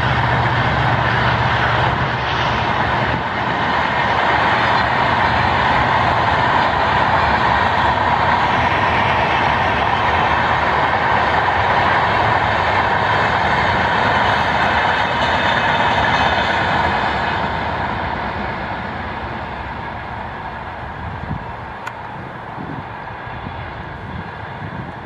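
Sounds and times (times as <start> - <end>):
train coaches rumbling on rails: 0.0 - 25.0.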